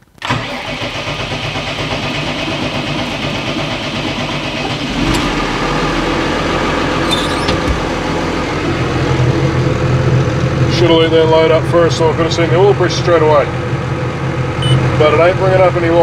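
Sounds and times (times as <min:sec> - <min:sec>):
quad bike engine idling: 0:01.6 - 0:13.7.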